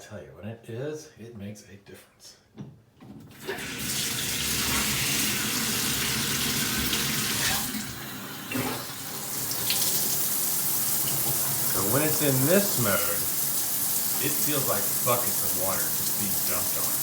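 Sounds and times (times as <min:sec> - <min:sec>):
shower spray running: 0:03.6 - 0:17.0.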